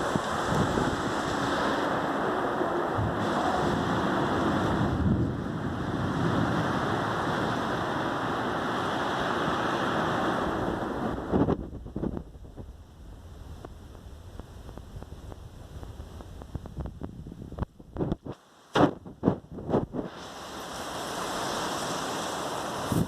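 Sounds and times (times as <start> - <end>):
strong wind rushing: 0.0 - 23.0
wind buffeting microphone: 0.0 - 23.0.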